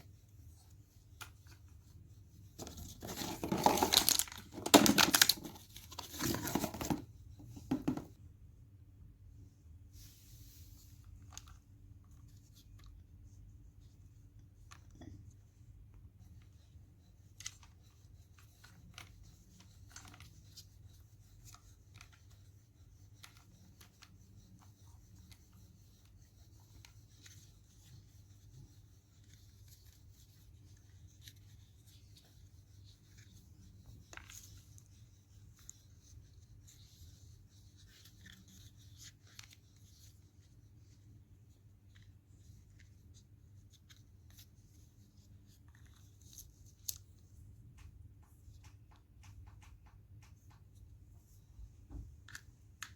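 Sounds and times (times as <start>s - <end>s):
rustling: 2.5s - 8.0s.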